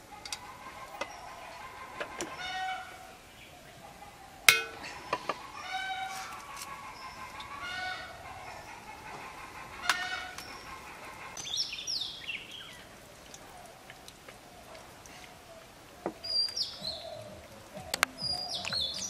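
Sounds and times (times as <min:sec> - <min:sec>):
songbird chirps: 0:00.0 - 0:19.0.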